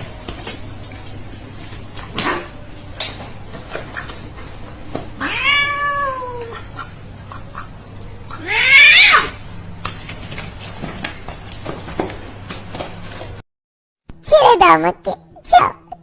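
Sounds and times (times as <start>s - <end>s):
cat meowing: 5.2s - 6.6s, 8.3s - 9.4s.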